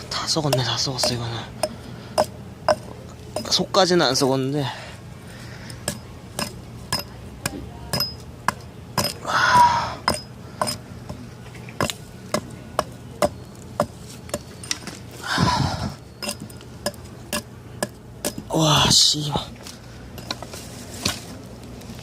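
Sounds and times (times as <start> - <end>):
rasping sounds: 15.2 - 19.0.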